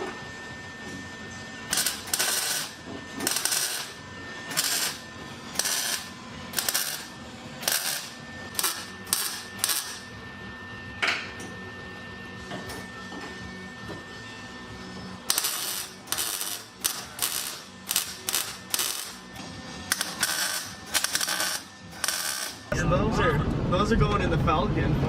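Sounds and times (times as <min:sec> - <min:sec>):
tack welding bursts: 0:01.7 - 0:10.0, 0:15.2 - 0:19.3, 0:19.9 - 0:22.7.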